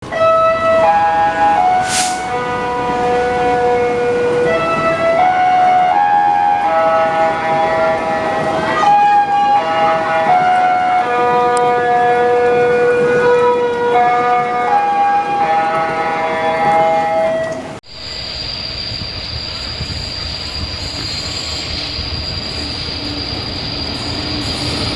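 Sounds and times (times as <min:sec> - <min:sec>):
short hiss: 0:01.8 - 0:02.4.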